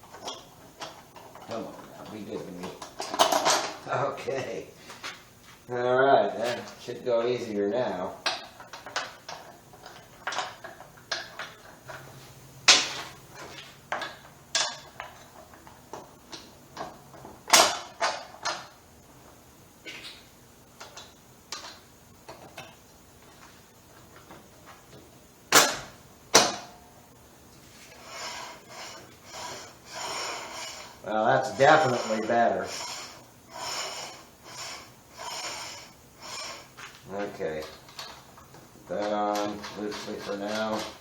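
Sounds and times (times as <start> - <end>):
metal parts clinking and knocking: 0.2 - 3.8.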